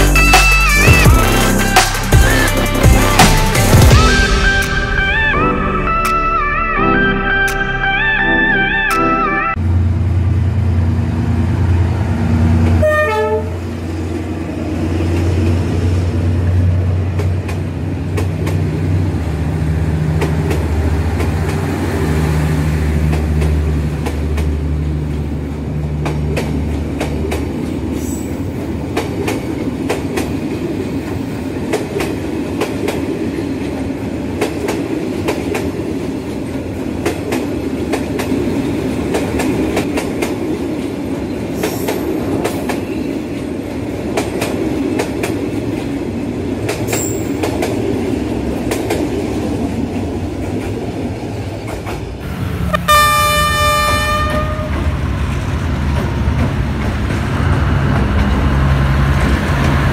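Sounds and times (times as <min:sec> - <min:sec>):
train wheels clicking over rail joints: 0:46.6 - 0:50.8, 0:51.4 - 0:52.2.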